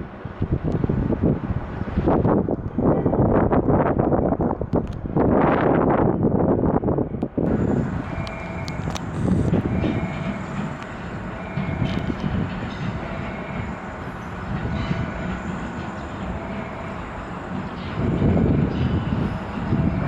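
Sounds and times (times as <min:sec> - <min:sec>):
train wheels on rails: 0:00.0 - 0:20.0
knocks of train: 0:08.1 - 0:20.0.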